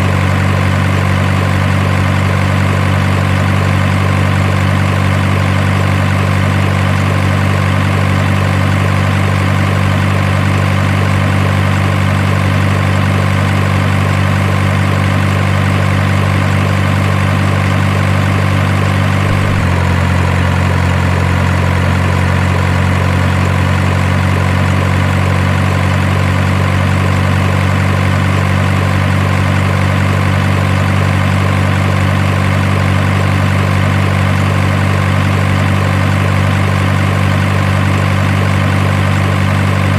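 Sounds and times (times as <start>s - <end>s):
simulated truck engine idling: 0.0s - 39.9s.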